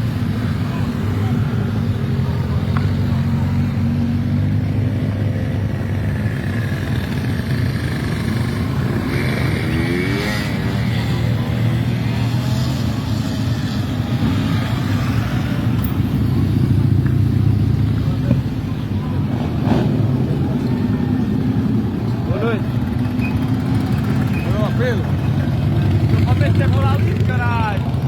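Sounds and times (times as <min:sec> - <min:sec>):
motorcycle engines droning: 0:00.0 - 0:28.0
motorcycle passing by: 0:02.1 - 0:18.2.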